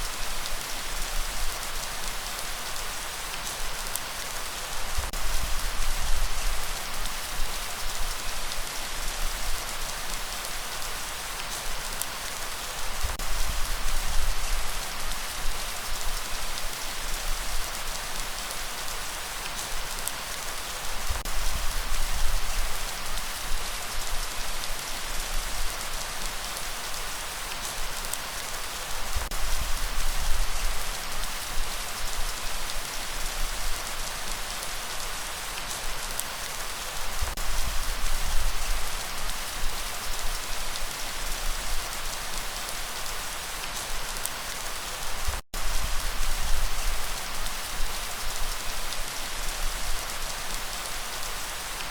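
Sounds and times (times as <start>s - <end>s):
light rain hiss: 0.0s - 51.9s.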